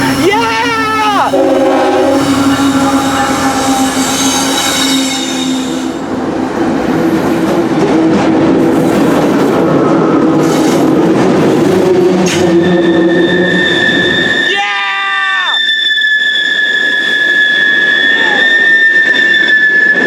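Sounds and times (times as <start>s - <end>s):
train wheels on rails: 0.0s - 20.0s
wheels squealing: 2.0s - 6.2s, 8.7s - 20.0s.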